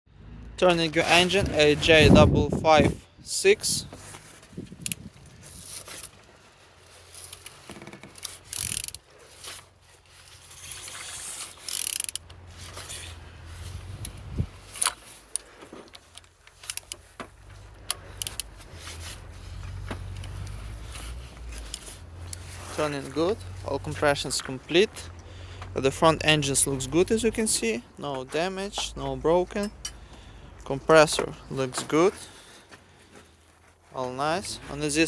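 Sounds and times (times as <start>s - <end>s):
mechanical rubbing: 7.3s - 9.1s, 10.3s - 15.0s
ratchet wrench clicks: 8.2s - 9.0s, 10.6s - 12.3s, 17.9s - 18.5s.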